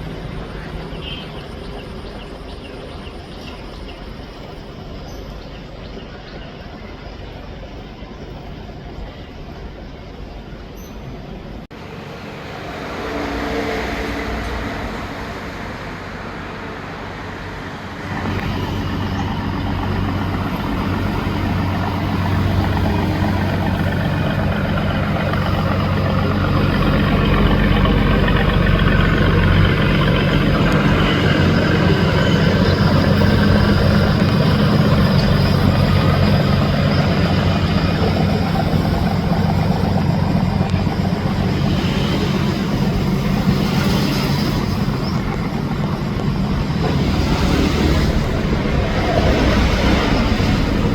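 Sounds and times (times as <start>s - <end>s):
boat engine running: 18.0s - 50.9s.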